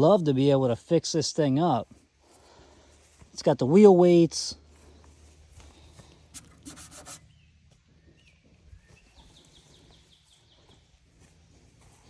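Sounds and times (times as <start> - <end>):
rustle: 1.8 - 12.0
soft bird chirps: 4.8 - 12.0.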